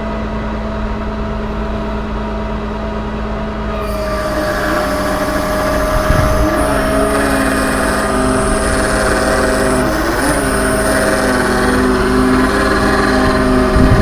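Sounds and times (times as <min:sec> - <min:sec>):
diesel engine rumbling: 0:03.7 - 0:14.0
high thin hydraulic whine: 0:03.7 - 0:14.0.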